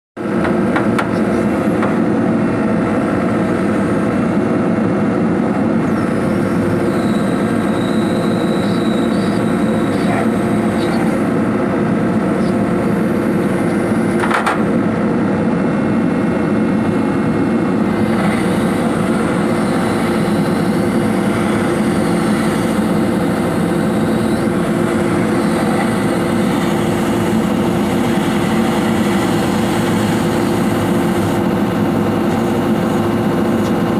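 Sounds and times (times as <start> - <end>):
excavator running: 0.2 - 33.9
abnormal swing device noise: 0.3 - 15.2.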